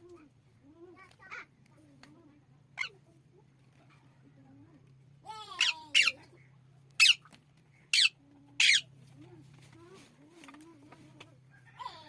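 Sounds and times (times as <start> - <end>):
parrot screeching: 5.6 - 6.2, 7.0 - 7.2, 7.9 - 8.9.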